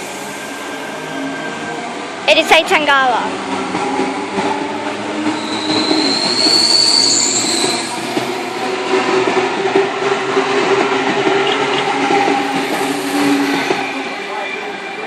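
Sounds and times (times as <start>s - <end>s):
electric train passing: 0.0s - 15.0s
high-pitched wheel squeal: 5.3s - 8.2s.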